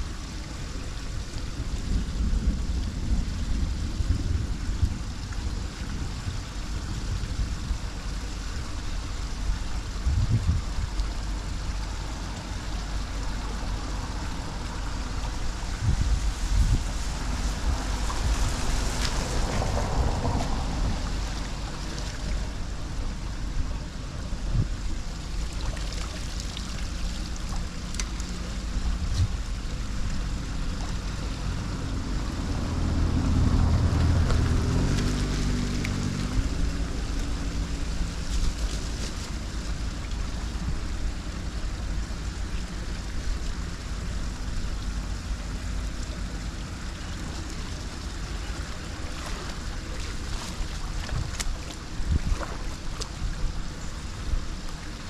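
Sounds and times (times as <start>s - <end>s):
water rushing into a drain: 0.0s - 55.0s
vehicle engine passing: 30.2s - 38.2s.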